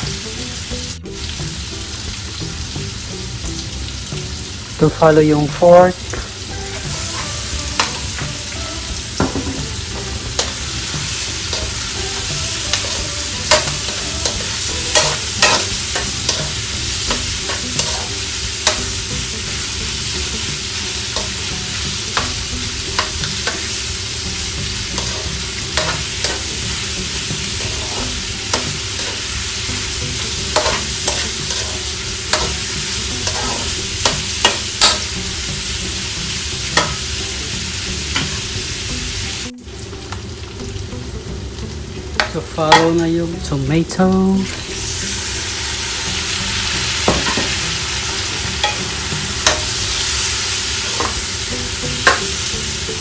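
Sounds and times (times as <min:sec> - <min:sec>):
meat sizzling in a wok: 0:00.0 - 0:53.0
spatula scraping a pan: 0:12.7 - 0:19.0, 0:25.0 - 0:26.6, 0:27.4 - 0:29.3, 0:30.5 - 0:35.1.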